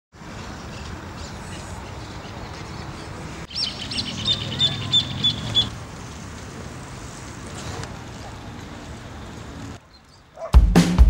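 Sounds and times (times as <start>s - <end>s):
outdoor background noise: 0.1s - 11.0s
bird calling: 0.6s - 5.7s.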